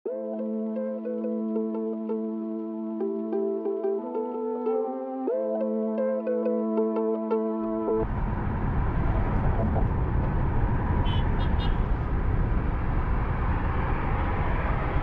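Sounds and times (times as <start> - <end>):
intro music: 0.1 - 8.1
road and engine rumble: 8.0 - 15.0.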